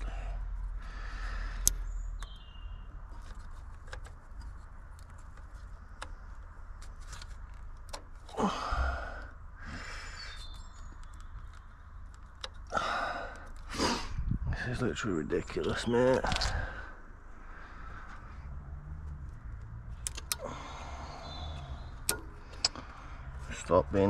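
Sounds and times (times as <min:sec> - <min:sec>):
breathy exhale of effort: 0:20.4 - 0:21.9.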